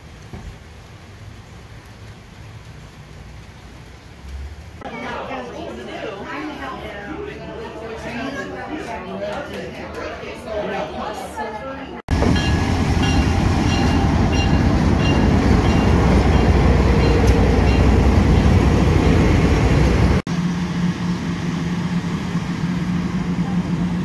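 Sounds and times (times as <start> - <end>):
train rumbling along rails: 12.1 - 24.0
steady low engine hum: 18.3 - 24.0.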